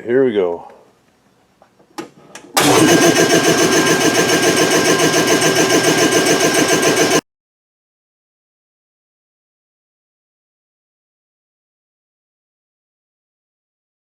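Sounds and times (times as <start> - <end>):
air compressor running: 2.6 - 7.2.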